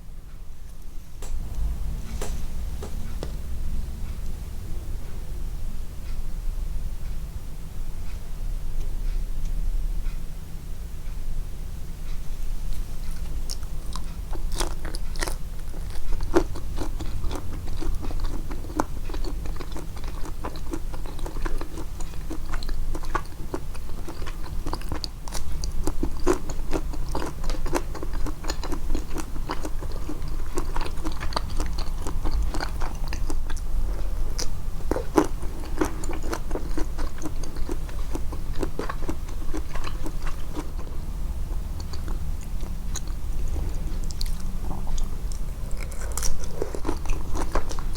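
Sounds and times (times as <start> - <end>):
low steady hum: 0.0 - 47.9
close chewing and biting food: 13.2 - 47.9.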